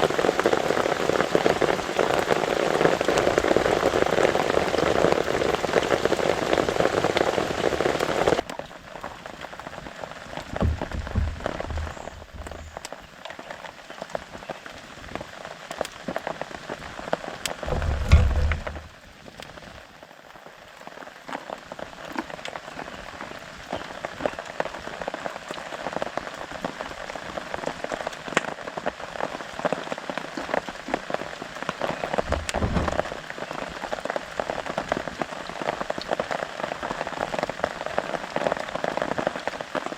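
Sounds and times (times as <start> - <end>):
rain pattering on a tarp: 0.0 - 39.9
dull low thumps: 10.6 - 12.9, 17.6 - 18.9.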